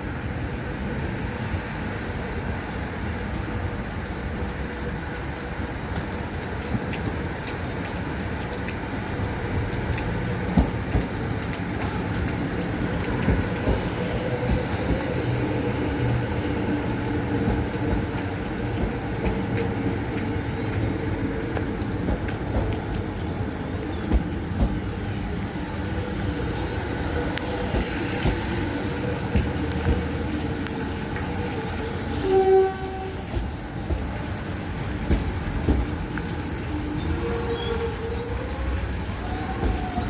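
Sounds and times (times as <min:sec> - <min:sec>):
electric train rumbling: 0:00.0 - 0:40.0.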